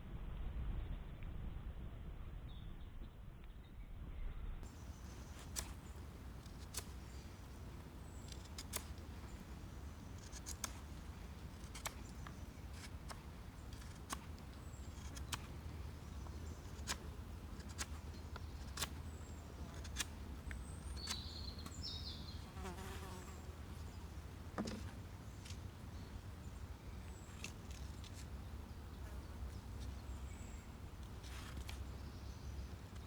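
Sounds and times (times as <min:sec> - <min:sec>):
sharp clicks: 0:08.2 - 0:09.1.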